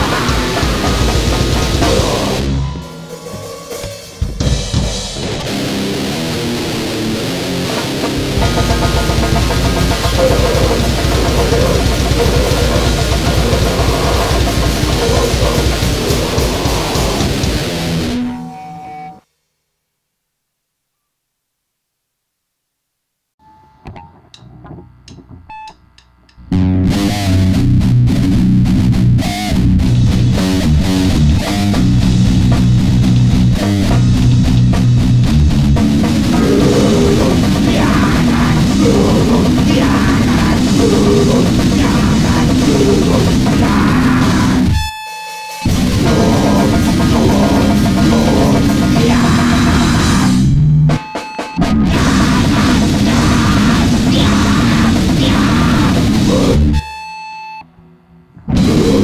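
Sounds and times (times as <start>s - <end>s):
distorted noise band playing: 0.0s - 19.2s, 23.4s - 59.0s.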